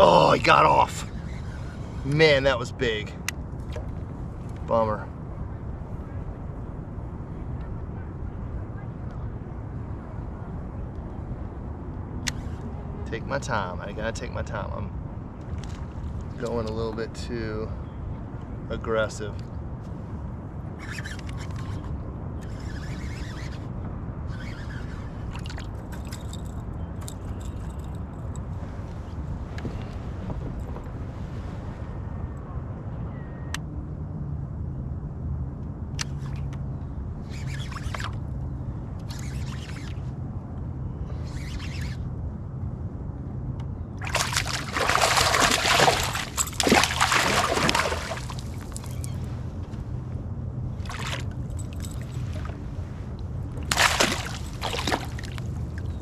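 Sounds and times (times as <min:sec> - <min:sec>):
wind rumble on microphone: 0:00.0 - 0:56.0
fishing gear clicking and scraping: 0:25.4 - 0:28.0, 0:44.1 - 0:49.3
water splashing at a kayak: 0:44.0 - 0:49.2, 0:50.8 - 0:52.6, 0:53.6 - 0:56.0.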